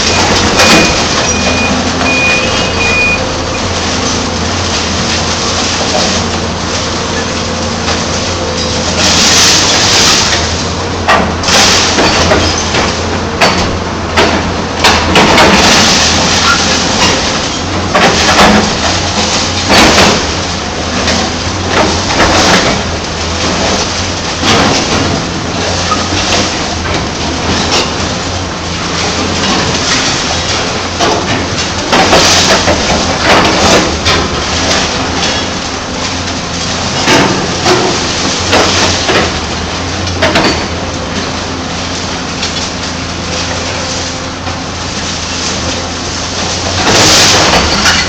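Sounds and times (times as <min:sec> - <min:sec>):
truck reversing beeper: 0:00.0 - 0:03.8
diesel engines running: 0:00.0 - 0:48.0.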